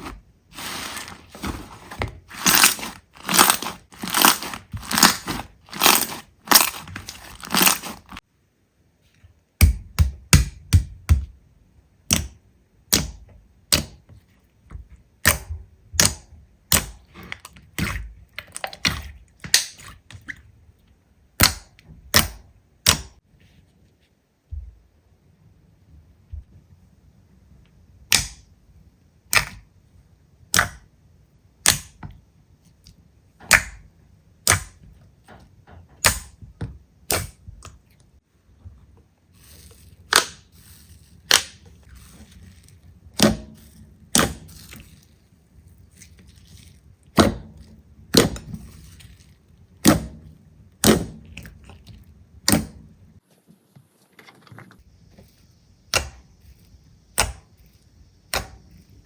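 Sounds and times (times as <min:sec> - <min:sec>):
slime popping: 0:02.3 - 0:08.2.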